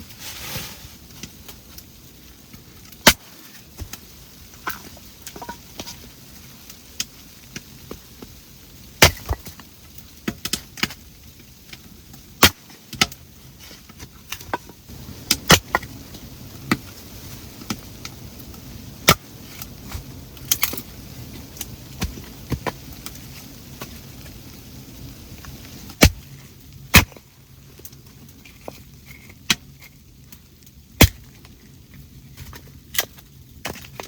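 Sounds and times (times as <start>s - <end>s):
sharp knocks and cracks: 2.5s - 6.0s, 9.0s - 11.0s, 12.4s - 13.2s, 26.9s - 30.0s, 31.0s - 31.6s.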